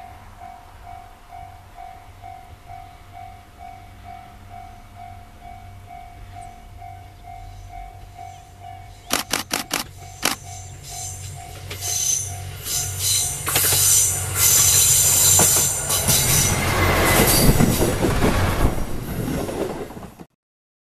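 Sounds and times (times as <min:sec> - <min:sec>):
railcar engine and wheel rumble: 0:00.0 - 0:20.3
wheels squealing: 0:08.9 - 0:20.2.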